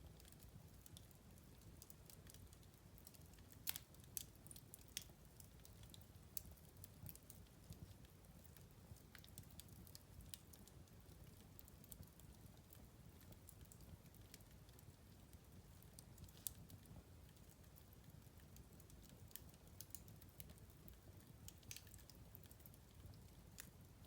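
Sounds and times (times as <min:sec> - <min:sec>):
fireplace fire crackling and popping: 0:00.0 - 0:24.0.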